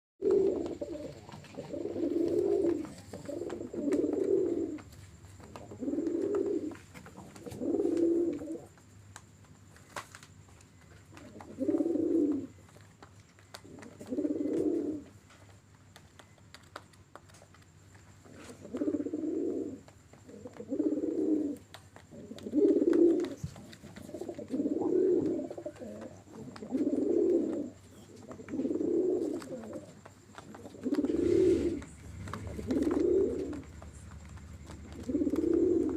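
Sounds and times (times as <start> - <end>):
pigeons cooing: 0.2 - 8.8, 10.8 - 12.8, 13.4 - 15.3, 18.2 - 35.9.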